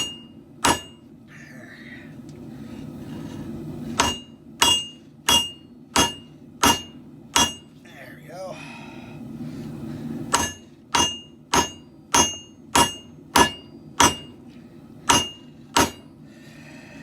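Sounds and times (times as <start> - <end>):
hammer striking hot steel: 0.0 - 1.1, 4.0 - 7.8, 10.3 - 14.4, 15.1 - 16.2.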